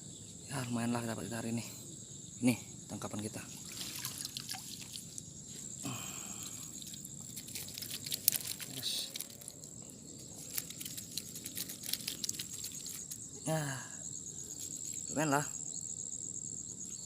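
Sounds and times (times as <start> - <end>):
high-pitched insect chirring: 6.2 - 17.0
light clicks and rustles: 6.7 - 9.7.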